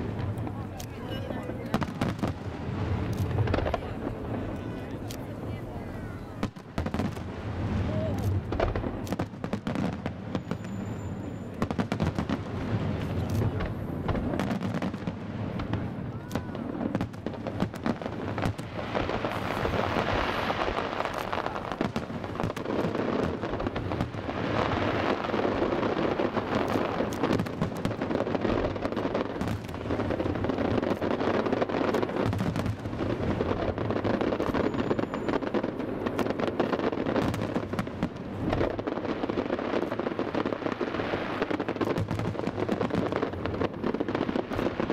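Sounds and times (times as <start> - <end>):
fireworks bangs and booms: 0.0 - 44.9
fireworks crackling: 0.0 - 44.9.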